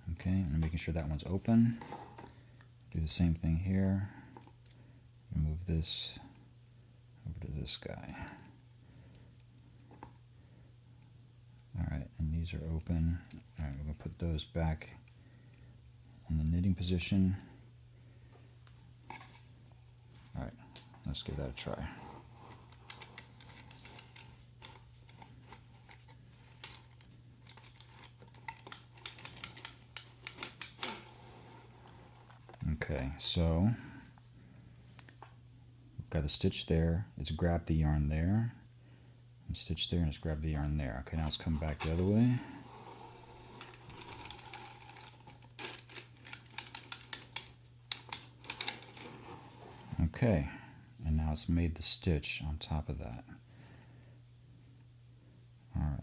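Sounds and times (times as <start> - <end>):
steady low hum: 0.0 - 56.0
knitting carriage sliding: 42.6 - 46.8.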